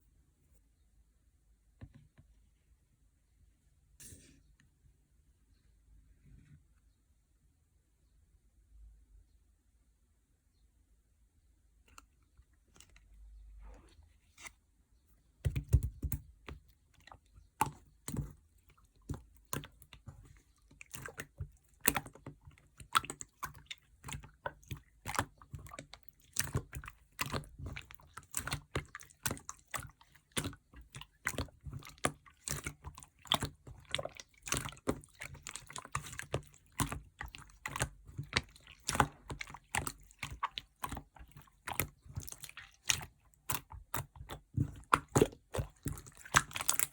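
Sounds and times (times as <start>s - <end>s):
slime squishing wet pops: 15.4s - 46.9s.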